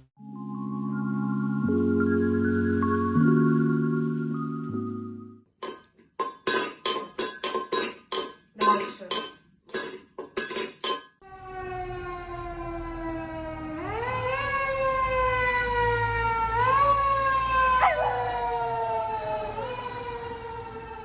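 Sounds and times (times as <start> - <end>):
dog howling: 17.6 - 20.0.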